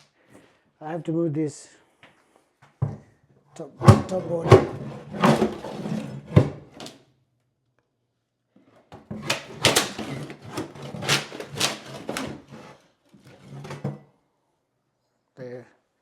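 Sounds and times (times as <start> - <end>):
plywood board knocks and scrapes: 3.8 - 6.9, 8.9 - 14.0.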